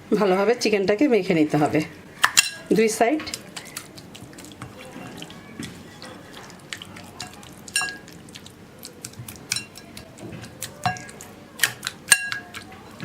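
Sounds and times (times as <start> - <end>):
dishware clinking: 2.3 - 2.7, 5.8 - 6.4, 7.2 - 8.1
hands squishing raw chicken: 3.3 - 13.0.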